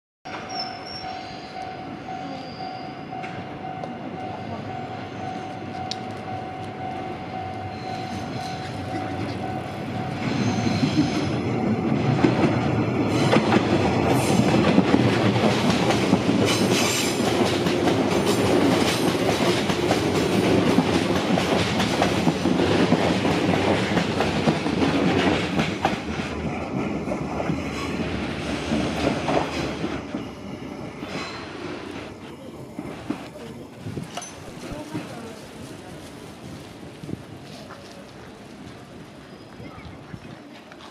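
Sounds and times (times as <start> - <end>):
wheels clicking over rail joints: 10.8 - 39.3.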